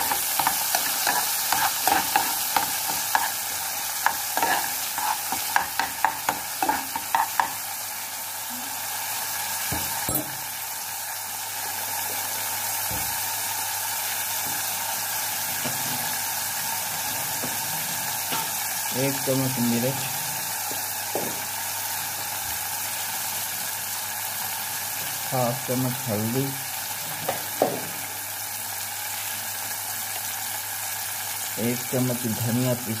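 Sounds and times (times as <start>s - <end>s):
metal spoon scraping a pan: 0.0s - 7.6s, 16.8s - 18.7s
vegetables frying in a pan: 0.0s - 33.0s.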